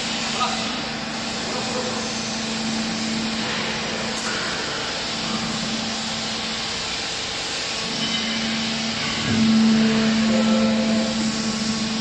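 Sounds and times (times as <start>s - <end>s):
hydraulic power unit humming: 0.0s - 12.0s.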